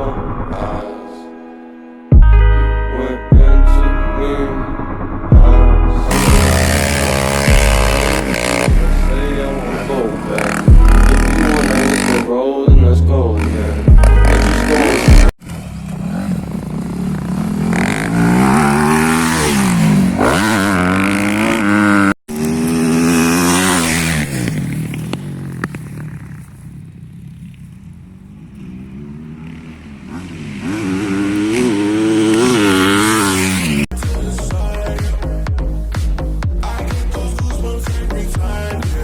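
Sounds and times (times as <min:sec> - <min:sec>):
dirt bike engine revving: 0:06.0 - 0:12.4, 0:13.3 - 0:33.9.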